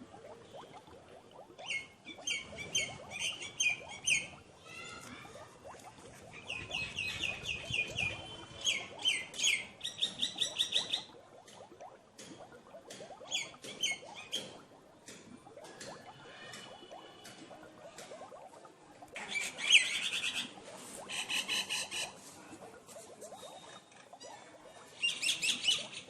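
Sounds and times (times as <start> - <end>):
soft bird twittering: 1.6 - 4.4, 6.3 - 11.1, 23.3 - 26.0.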